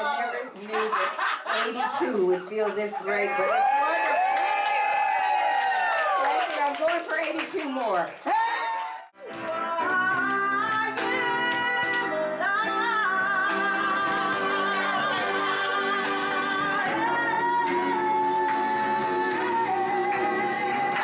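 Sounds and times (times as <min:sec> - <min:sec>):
gospel singing in harmony: 0:09.3 - 0:21.0.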